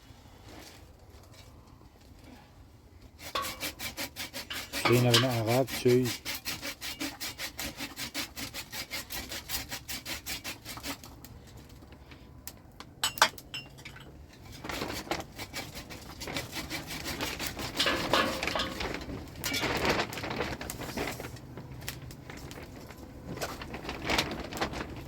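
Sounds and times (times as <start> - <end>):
hand tool scraping wood: 3.1 - 11.2, 14.4 - 21.3
rustling: 14.3 - 25.0.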